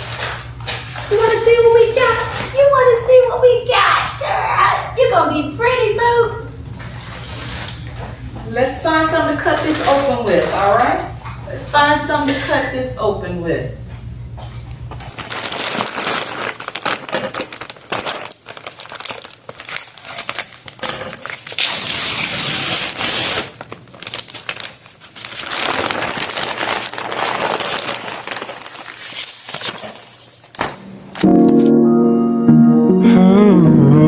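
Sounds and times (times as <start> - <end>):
packaging crinkling and rustling: 14.5 - 31.3
packaging ripping: 15.0 - 31.3
packaging clicks: 15.1 - 21.7.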